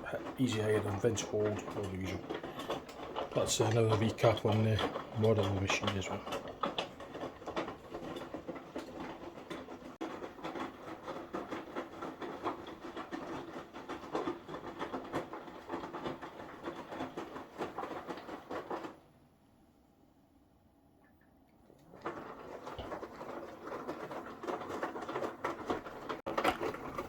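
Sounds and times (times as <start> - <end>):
clattering clicks and taps: 0.0 - 19.0, 21.8 - 27.0
washing machine drum humming: 0.0 - 19.0.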